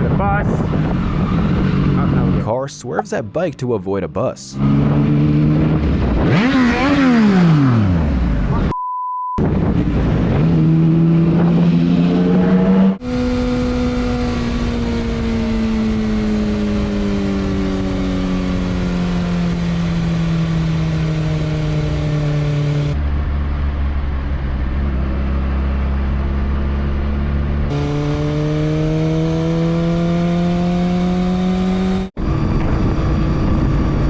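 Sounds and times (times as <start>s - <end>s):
motorcycle engine revving: 4.6s - 8.5s, 27.7s - 32.1s.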